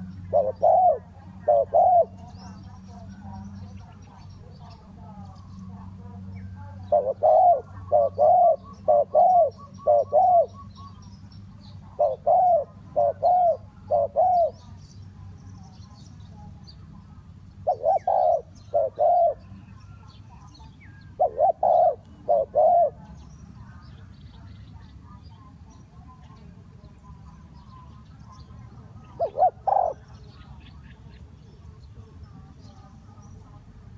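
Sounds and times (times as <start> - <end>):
dove cooing: 0.0 - 14.9, 16.8 - 24.0, 26.9 - 31.1.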